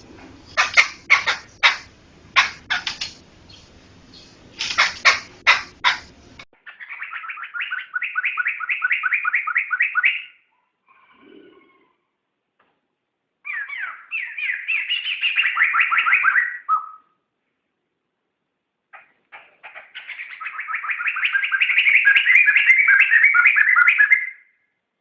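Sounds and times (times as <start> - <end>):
bird singing repeated notes: 0.4 - 10.5, 13.4 - 17.2, 19.0 - 24.6.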